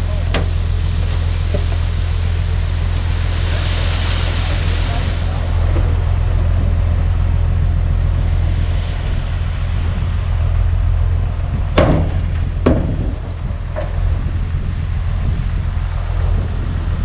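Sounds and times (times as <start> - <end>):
bulldozer diesel engine running: 0.0 - 17.0
sharp knocks: 11.8 - 14.0.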